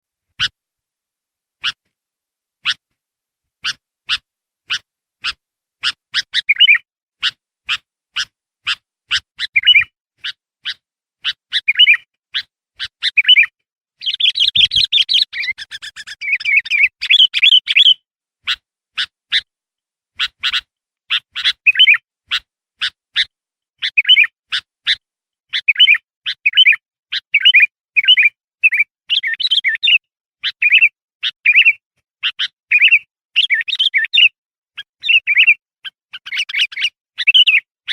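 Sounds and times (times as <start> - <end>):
bulbul chirping and warbling: 3.6 - 7.8, 8.6 - 12.0, 12.8 - 19.1
bird chattering: 3.6 - 19.4, 20.2 - 37.9.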